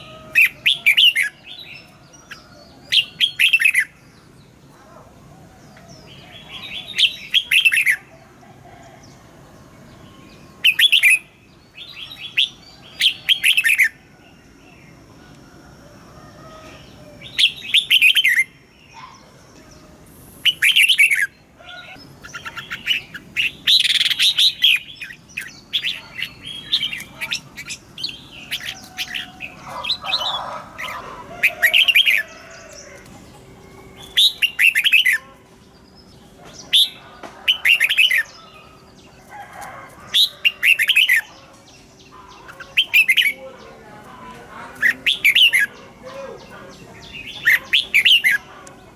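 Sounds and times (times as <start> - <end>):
bird singing warbled phrases: 0.0 - 8.4, 9.3 - 15.1, 16.5 - 48.9.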